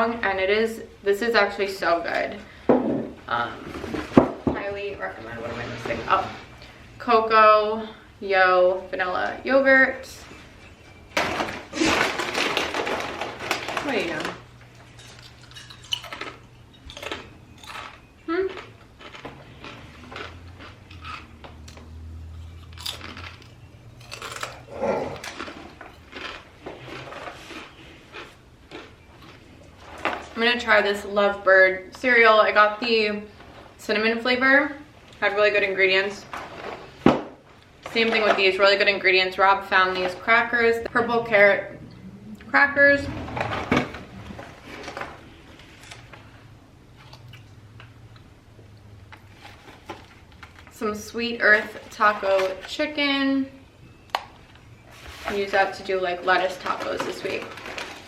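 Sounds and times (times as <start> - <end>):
low steady hum: 0.0 - 58.0
grocery bags crinkling: 11.2 - 31.0, 49.2 - 53.0, 54.4 - 58.0
low hum: 40.8 - 49.2.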